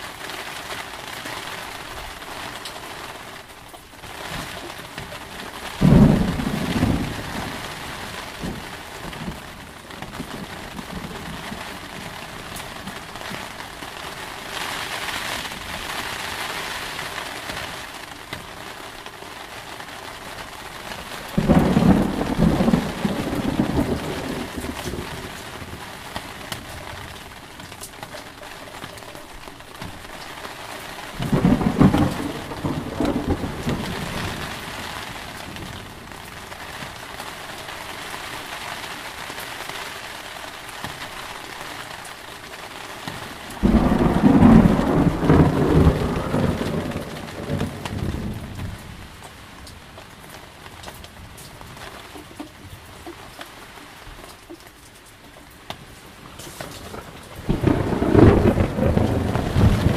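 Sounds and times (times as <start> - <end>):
heavy rain falling: 0.0 - 59.9
thunder rumbling: 5.2 - 13.6, 20.8 - 27.6, 31.1 - 36.9, 43.2 - 49.2, 56.4 - 59.9.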